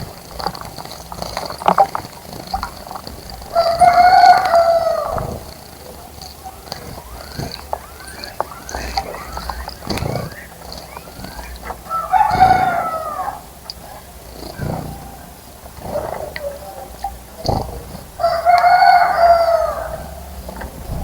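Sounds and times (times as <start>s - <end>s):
rooster crowing: 2.6s - 14.0s, 18.2s - 20.4s.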